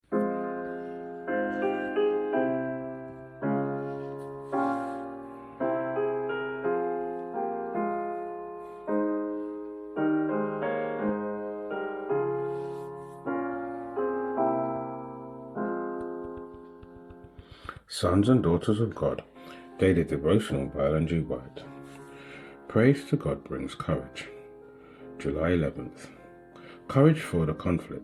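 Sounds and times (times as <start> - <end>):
slow gentle piano chords: 0.0 - 28.0.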